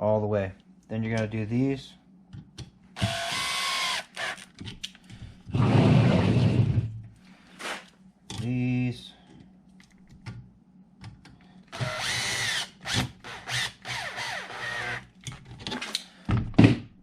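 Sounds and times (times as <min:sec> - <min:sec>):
power screwdriver motor whine: 0:03.0 - 0:04.5, 0:11.8 - 0:15.0.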